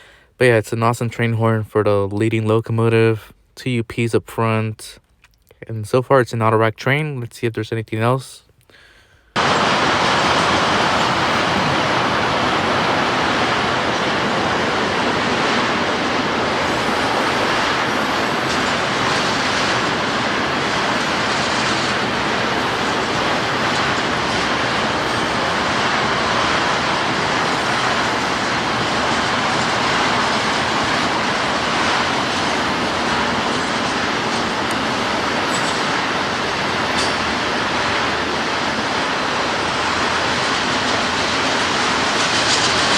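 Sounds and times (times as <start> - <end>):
freight train wheels rolling: 9.4 - 42.9.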